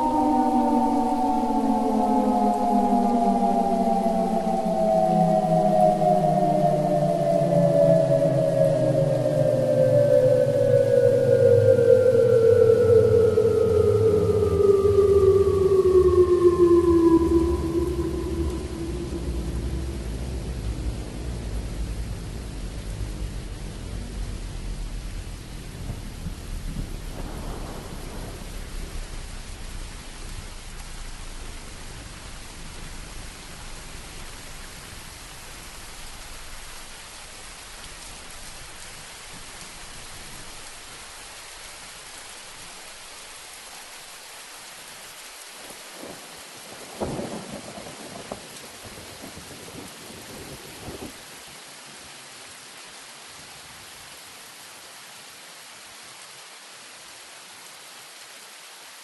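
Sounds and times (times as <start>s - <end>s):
thunder rumbling: 0.0s - 43.3s, 45.7s - 51.2s
rain hiss: 0.0s - 59.0s
thunderclap: 18.5s - 36.6s, 46.8s - 51.1s.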